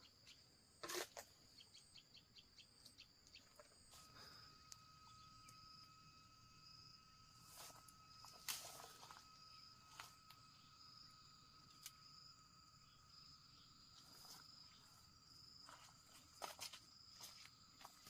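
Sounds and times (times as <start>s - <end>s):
insect chirring: 0.0s - 18.0s.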